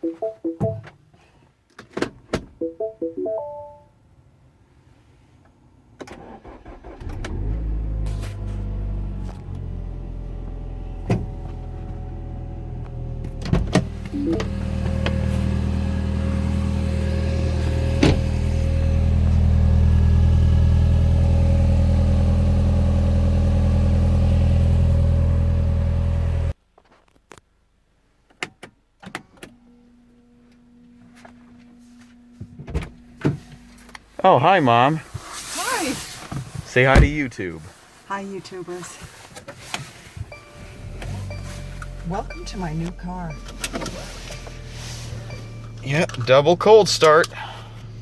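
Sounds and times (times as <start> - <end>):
car engine idling: 7.3 - 26.6, 40.1 - 48.0.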